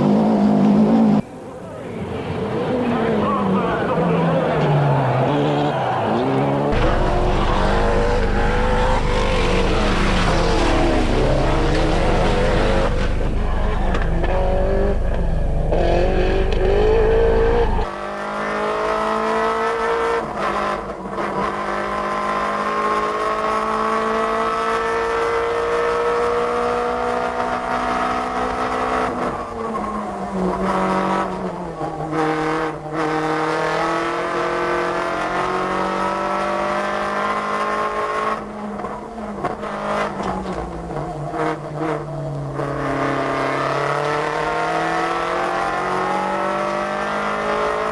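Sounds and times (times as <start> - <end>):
rally car engines at full throttle: 0.0 - 47.9.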